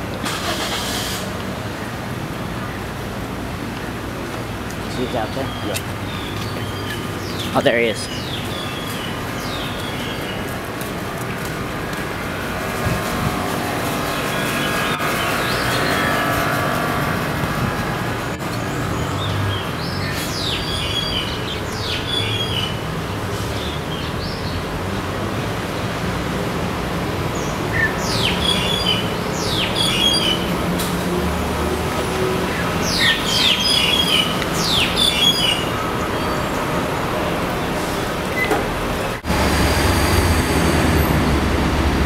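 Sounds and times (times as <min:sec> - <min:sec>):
birds chirping: 0:04.8 - 0:17.0, 0:17.7 - 0:22.9, 0:27.4 - 0:30.6, 0:32.4 - 0:37.0.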